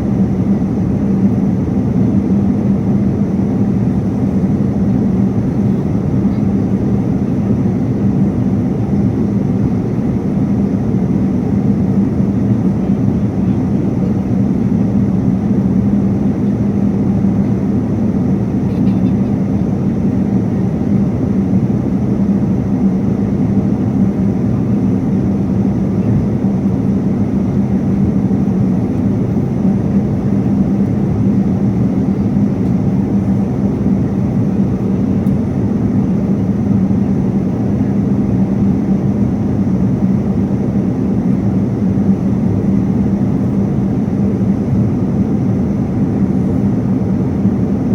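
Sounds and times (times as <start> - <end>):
engine and airflow drone: 0.0 - 47.9.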